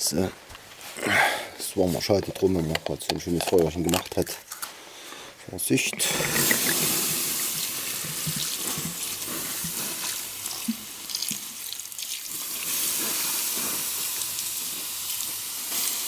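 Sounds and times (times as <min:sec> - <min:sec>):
water hissing on embers: 0:06.0 - 0:16.0.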